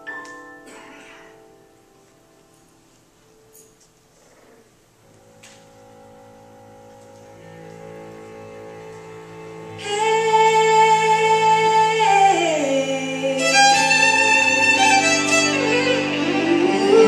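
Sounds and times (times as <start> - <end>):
violin sliding held notes: 5.1 - 17.0.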